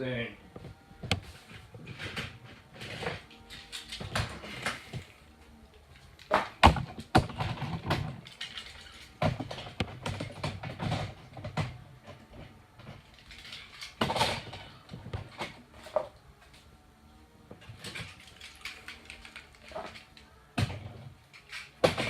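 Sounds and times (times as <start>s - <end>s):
rustling clatter: 0.5s - 16.7s, 17.6s - 22.0s
hard objects knocking and clicking: 6.2s - 16.0s, 17.6s - 22.0s.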